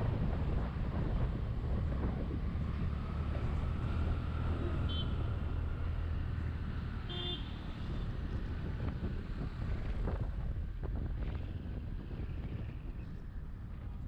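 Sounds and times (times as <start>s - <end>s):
wind on camera microphone: 0.0s - 4.4s, 7.6s - 14.0s
road and engine rumble: 0.0s - 14.0s
car horn beep: 4.8s - 5.4s, 7.1s - 7.6s.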